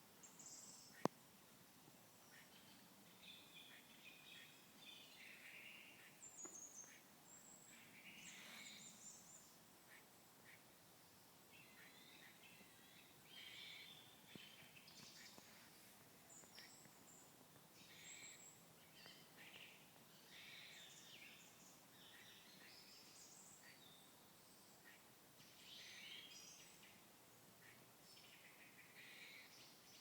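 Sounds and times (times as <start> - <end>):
faint harsh bird calls: 2.2 - 10.8.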